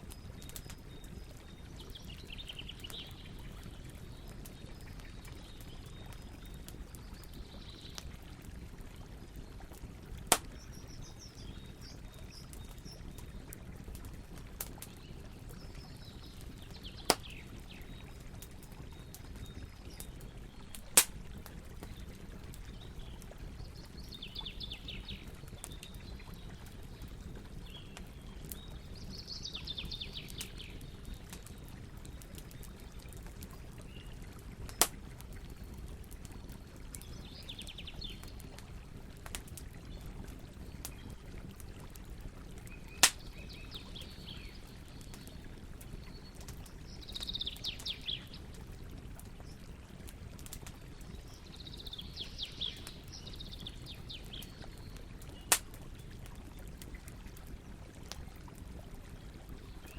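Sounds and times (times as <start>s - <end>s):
campfire burning and crackling: 0.0s - 59.9s
loud pops of wood: 10.3s - 10.6s, 20.8s - 21.2s, 43.0s - 43.2s, 55.5s - 55.7s.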